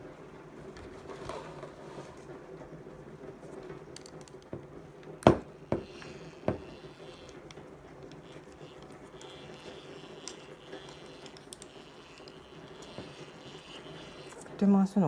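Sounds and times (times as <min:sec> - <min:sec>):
sharp knocks: 0:05.2 - 0:06.8.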